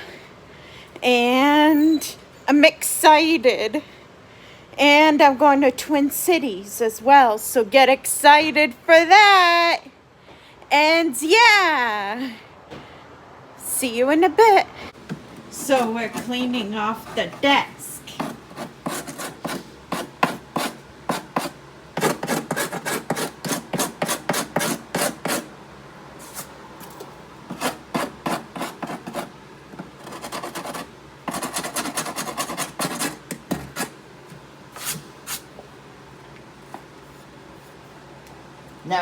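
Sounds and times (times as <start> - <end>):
hand rubbing desk surface: 15.4 - 23.3, 26.2 - 29.3, 34.7 - 35.6.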